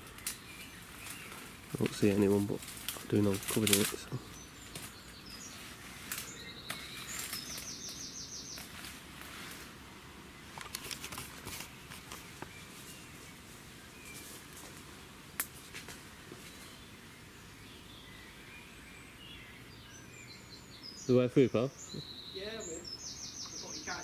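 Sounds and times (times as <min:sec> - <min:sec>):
light clicks and rustles: 0:00.0 - 0:09.7, 0:10.5 - 0:13.0
birds chirping: 0:00.0 - 0:24.0
bird trill: 0:04.2 - 0:08.8, 0:17.6 - 0:24.0.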